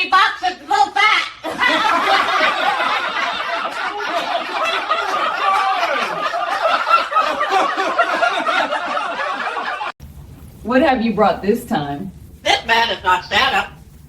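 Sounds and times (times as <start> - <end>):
people laughing: 1.4 - 10.0.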